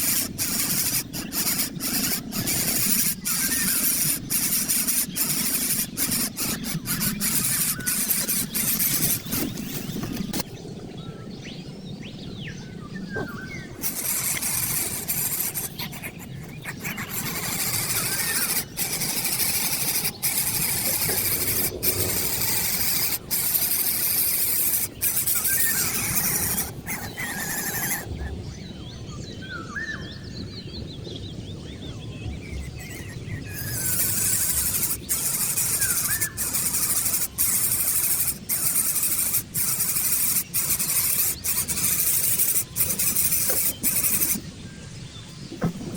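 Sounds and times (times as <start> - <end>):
steady hiss: 0.0 - 10.4, 13.8 - 28.1, 33.1 - 44.6
birds calling: 0.0 - 45.9.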